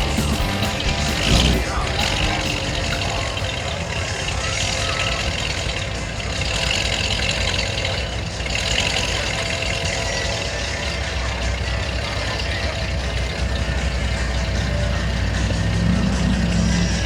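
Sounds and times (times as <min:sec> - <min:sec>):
car engines idling: 0:00.0 - 0:17.0.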